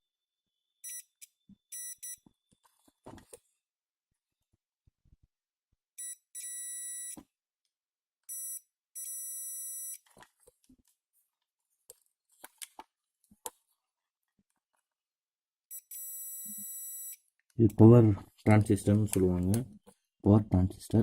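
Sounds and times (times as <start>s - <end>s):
multimeter continuity buzzer: 6.0s - 7.2s, 15.7s - 17.2s.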